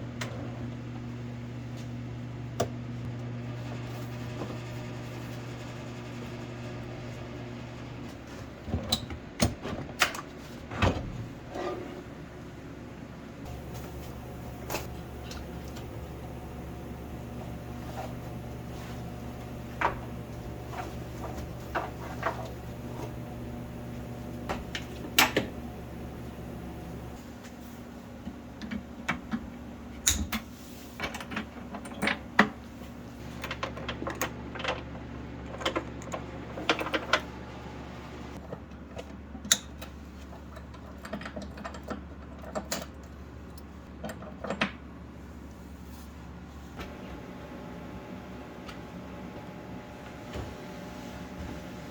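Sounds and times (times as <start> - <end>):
steady low hum: 11.2 - 30.4.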